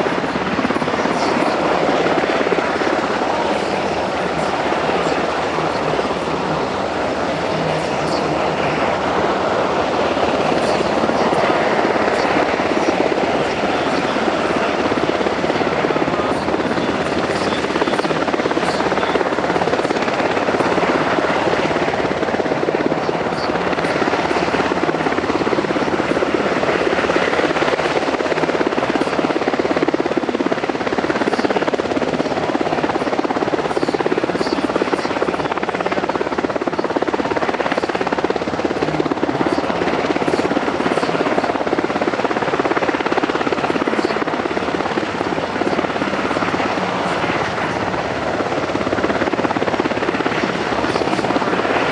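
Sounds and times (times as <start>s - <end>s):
helicopter hovering: 0.0s - 51.9s.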